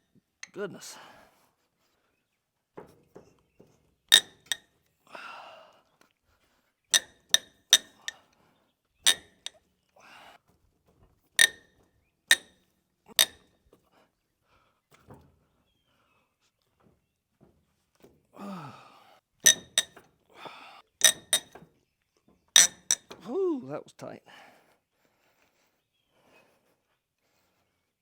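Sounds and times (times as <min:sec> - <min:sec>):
heavy breathing: 0:00.8 - 0:02.2, 0:05.0 - 0:06.7, 0:10.0 - 0:10.5, 0:18.4 - 0:19.3, 0:20.3 - 0:20.9, 0:24.2 - 0:28.0
metal tools clinking on metal: 0:04.1 - 0:04.6, 0:06.9 - 0:08.2, 0:09.0 - 0:09.6, 0:11.4 - 0:11.6, 0:12.3 - 0:13.4, 0:19.4 - 0:20.1, 0:21.0 - 0:21.7, 0:22.6 - 0:23.2.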